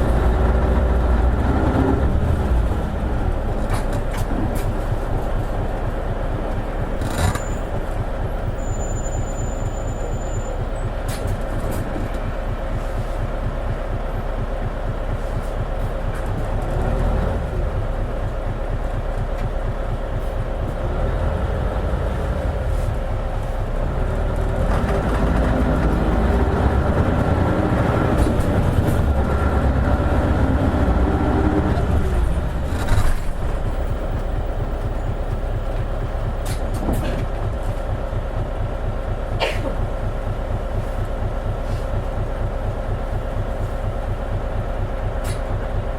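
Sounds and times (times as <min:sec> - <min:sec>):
bus engine and road noise: 0:00.0 - 0:45.9
knocks from bus body: 0:35.3 - 0:38.3, 0:39.3 - 0:41.9.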